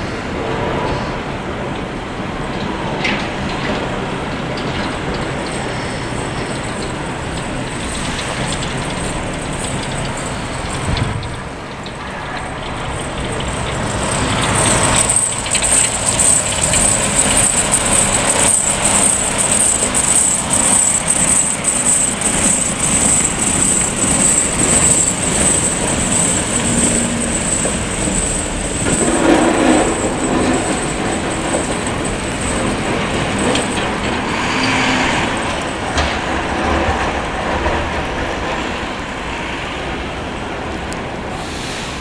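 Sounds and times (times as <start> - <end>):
truck engine and road noise: 0.0 - 42.0
pulsing high-pitched hiss: 5.4 - 34.6.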